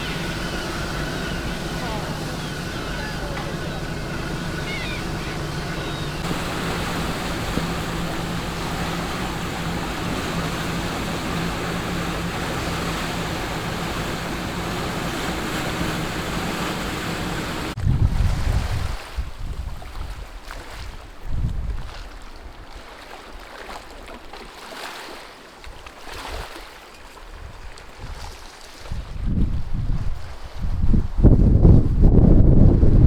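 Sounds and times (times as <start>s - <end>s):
boat engine humming: 0.0s - 17.8s
rushing water: 0.0s - 21.2s
wind buffeting microphone: 0.0s - 22.0s, 28.9s - 33.0s.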